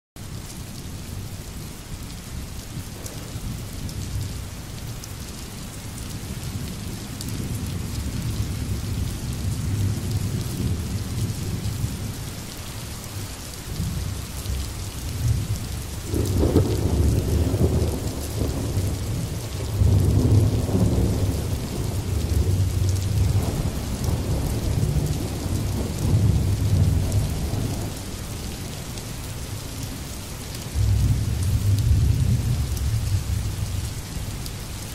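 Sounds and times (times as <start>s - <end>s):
steady rain: 0.2s - 34.9s
low rolling thunder: 2.8s - 4.3s, 6.2s - 12.2s, 13.7s - 28.8s, 30.7s - 34.3s.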